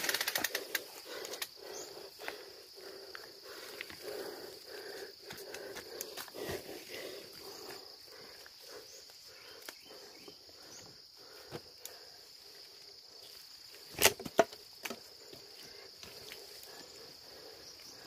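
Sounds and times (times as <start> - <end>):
insects droning: 0.0 - 18.0
faint ticks: 11.7 - 12.1.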